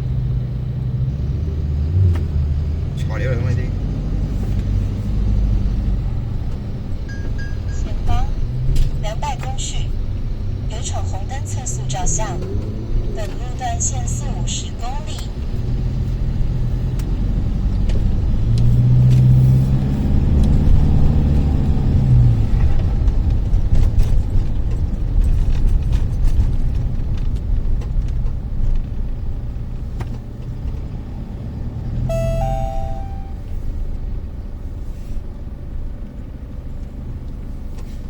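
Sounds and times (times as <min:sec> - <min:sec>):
car engine and road rumble: 0:00.0 - 0:38.0
short electronic tone: 0:32.1 - 0:33.4.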